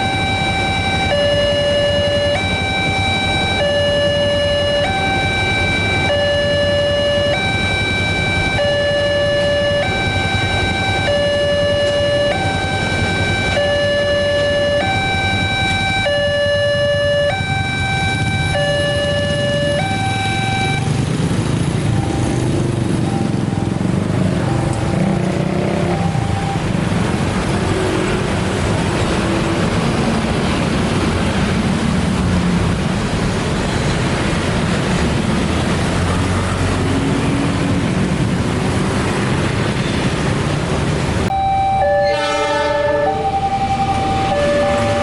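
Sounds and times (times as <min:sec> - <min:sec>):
on-off warning tones: 0:00.0 - 0:26.8, 0:41.2 - 0:45.0
multi-tone warning signal: 0:00.0 - 0:27.0, 0:41.2 - 0:45.0
passing vehicles: 0:00.0 - 0:45.0.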